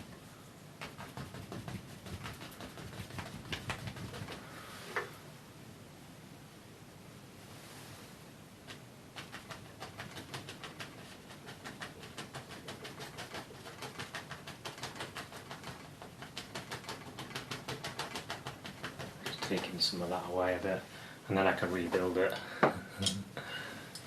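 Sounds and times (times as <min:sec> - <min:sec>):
paintbrush dabbing on canvas: 0:00.0 - 0:04.5.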